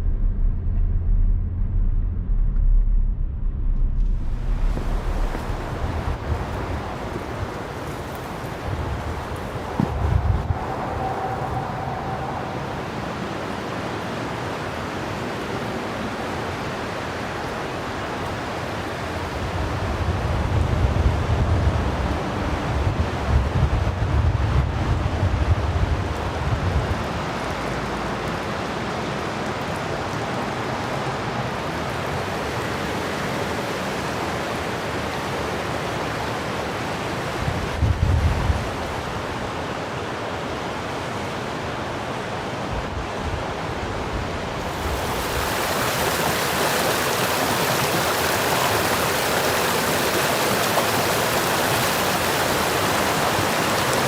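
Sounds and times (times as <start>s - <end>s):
wind buffeting microphone: 0.0s - 14.2s, 19.4s - 27.6s, 37.3s - 39.7s, 42.6s - 54.0s
steady rushing noise: 0.0s - 25.1s, 43.8s - 54.0s.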